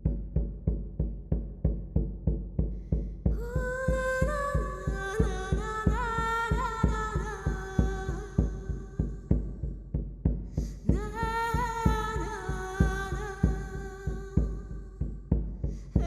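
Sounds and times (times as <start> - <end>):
drum beating steady pulse: 0.0 - 16.0
person singing wavering melody: 3.4 - 9.0.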